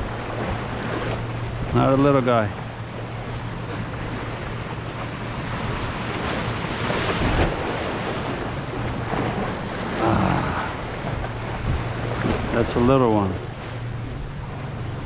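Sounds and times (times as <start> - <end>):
ocean surf washing in: 0.0 - 15.0
wind on microphone: 3.1 - 15.0.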